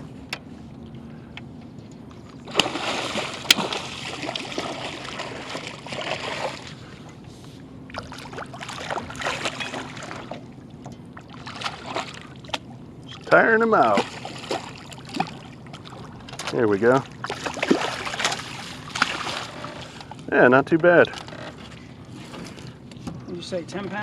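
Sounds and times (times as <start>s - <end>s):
fish thrashing water splashing: 2.4s - 7.0s, 7.9s - 10.5s, 11.2s - 19.9s.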